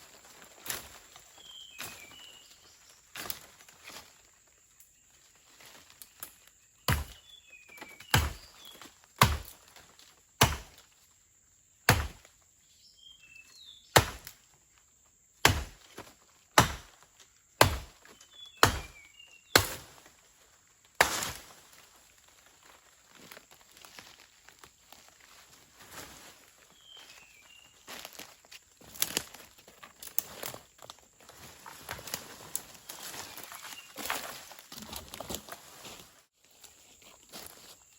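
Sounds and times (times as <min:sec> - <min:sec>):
wood being chopped: 0:06.9 - 0:07.2, 0:08.0 - 0:08.5, 0:09.2 - 0:09.6, 0:10.4 - 0:10.8, 0:11.9 - 0:12.3, 0:13.9 - 0:14.4, 0:15.4 - 0:17.0, 0:17.6 - 0:20.0, 0:21.0 - 0:21.5.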